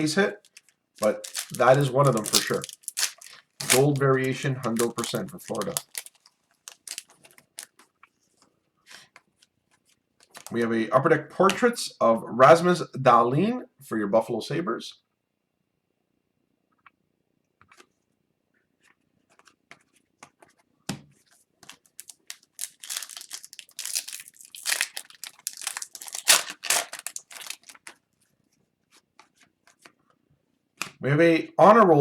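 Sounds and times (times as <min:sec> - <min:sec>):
foil wrapper crinkling and tearing: 0:00.0 - 0:07.8, 0:10.2 - 0:10.6, 0:21.6 - 0:28.0
trading cards clicking: 0:01.0 - 0:06.0.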